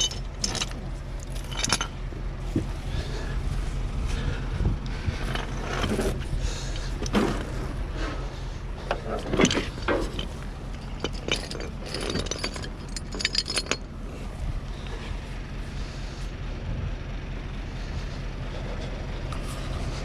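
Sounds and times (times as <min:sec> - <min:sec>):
metallic clanks and rattles: 0:00.0 - 0:03.4, 0:04.0 - 0:15.1
engine running: 0:00.0 - 0:20.0.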